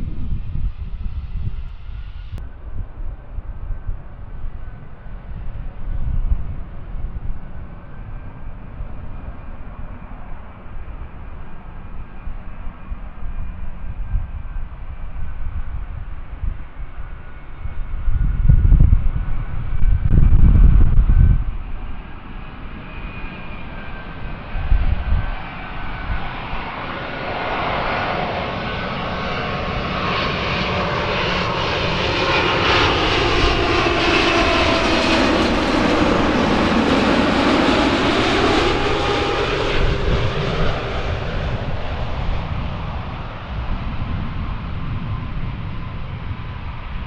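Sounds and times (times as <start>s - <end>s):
wind thumps on microphone: 0.0s - 4.2s, 17.6s - 21.9s
jet airliner passing: 0.0s - 47.0s.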